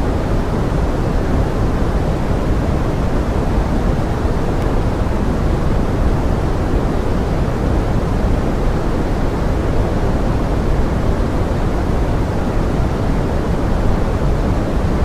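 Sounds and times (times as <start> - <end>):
pink noise rain hiss: 0.0 - 15.0.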